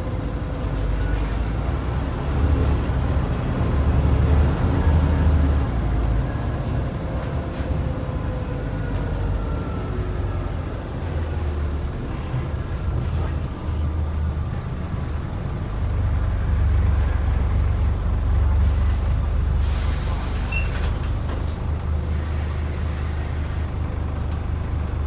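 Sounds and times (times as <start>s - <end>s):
bus diesel engine running: 0.0s - 25.0s
air hiss: 19.6s - 21.0s.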